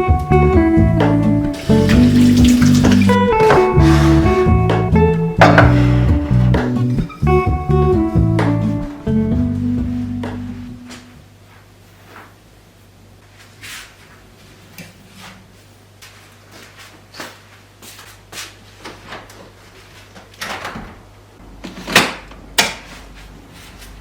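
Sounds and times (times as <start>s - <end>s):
cabinet doors and drawers clicking: 1.8s - 7.4s.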